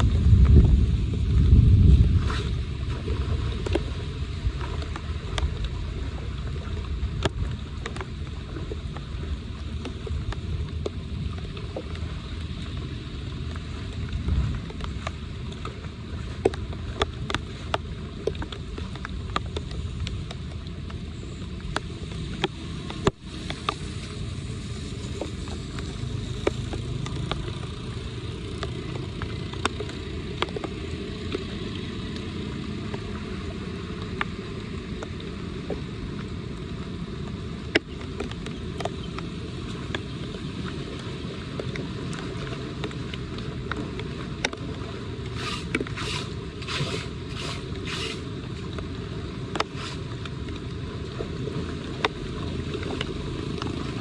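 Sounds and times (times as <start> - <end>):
water rushing into storm drain: 42.0 - 54.0.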